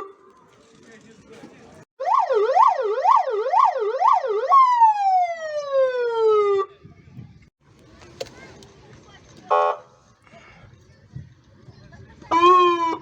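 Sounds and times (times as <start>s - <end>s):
fire engine siren: 2.0s - 6.7s, 12.3s - 13.0s.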